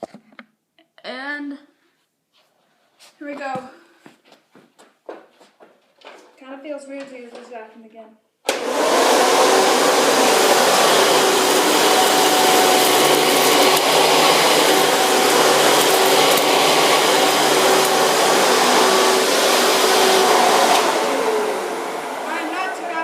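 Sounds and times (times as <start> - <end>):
vacuum cleaner running: 8.5 - 23.0.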